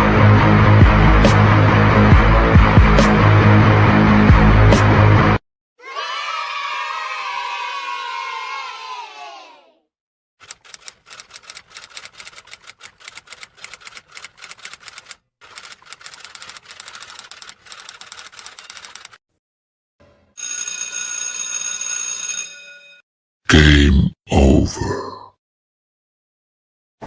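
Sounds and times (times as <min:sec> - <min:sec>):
typewriter keys clattering: 0:10.4 - 0:19.2.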